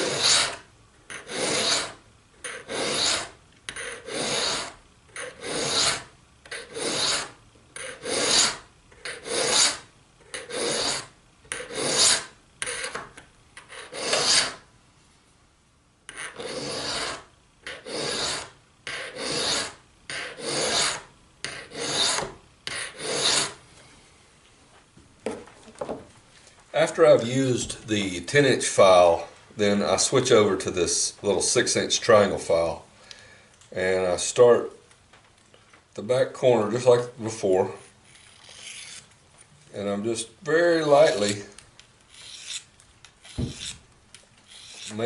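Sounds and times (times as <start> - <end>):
file rasping on steel: 0.0 - 13.0, 13.6 - 14.6, 16.1 - 23.6, 38.1 - 39.1, 42.1 - 42.7, 43.3 - 43.8, 44.5 - 45.0.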